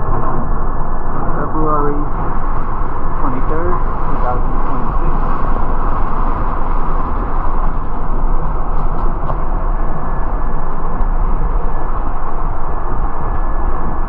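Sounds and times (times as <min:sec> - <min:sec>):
bus engine rumble: 0:00.0 - 0:14.0
road noise: 0:00.0 - 0:14.0.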